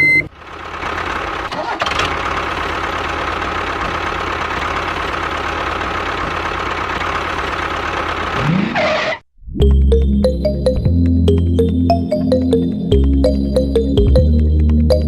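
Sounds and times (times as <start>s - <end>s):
music: 9.6s - 15.0s.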